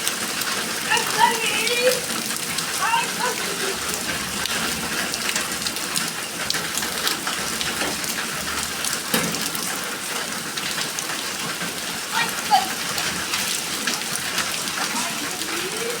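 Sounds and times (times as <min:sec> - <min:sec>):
rain drops striking a surface: 0:00.0 - 0:16.0.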